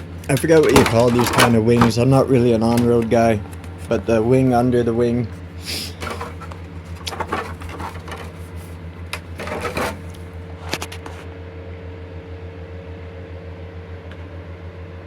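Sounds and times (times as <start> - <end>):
steady low hum: 0.0 - 15.0
sharp clicks and knocks: 0.2 - 2.0, 6.0 - 8.4.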